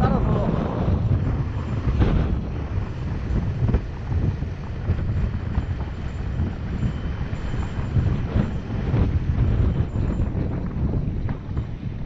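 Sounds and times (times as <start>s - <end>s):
steady low rumble: 0.0s - 12.0s
wind buffeting microphone: 0.0s - 12.0s.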